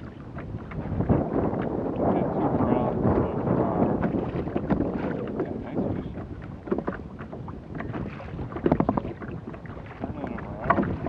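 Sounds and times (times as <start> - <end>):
knocks or splashes: 0.0 - 11.0
water sloshing against hull: 0.0 - 11.0
wind buffeting microphone: 0.0 - 11.0.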